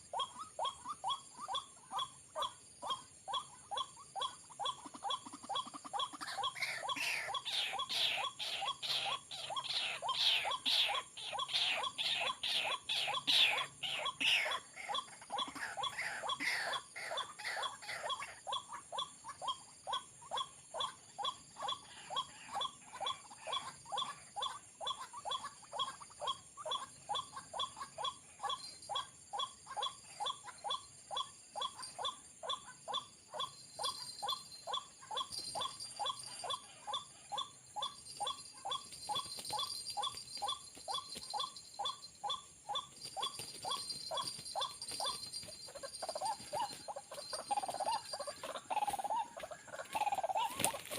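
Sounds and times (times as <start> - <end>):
waterhen calling: 33.8 - 50.9.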